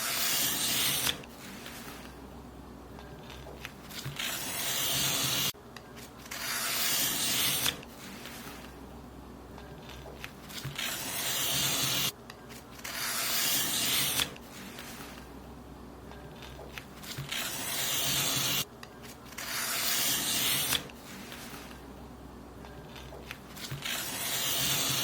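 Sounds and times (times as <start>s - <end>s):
paper being cut: 0.0s - 2.1s, 3.2s - 5.6s, 6.2s - 8.7s, 9.8s - 12.1s, 12.8s - 15.2s, 16.4s - 18.6s, 19.3s - 21.8s, 22.9s - 25.0s.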